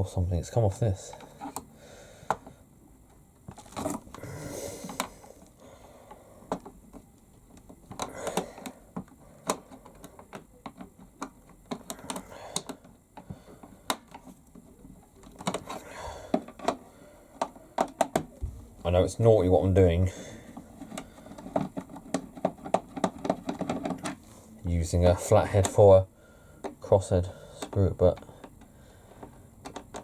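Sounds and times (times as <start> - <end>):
screwdriver clicking on plastic casing: 20.8 - 24.2, 27.6 - 30.0.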